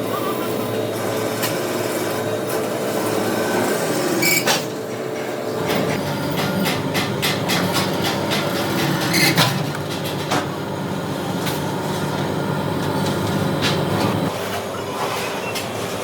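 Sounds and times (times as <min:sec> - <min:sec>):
low machine hum: 0:00.0 - 0:16.0
metallic knocks and clanks: 0:05.7 - 0:10.5.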